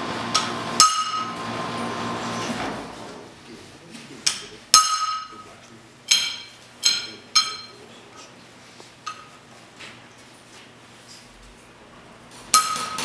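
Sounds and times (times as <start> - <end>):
hammer striking steel punch: 0.4 - 1.3.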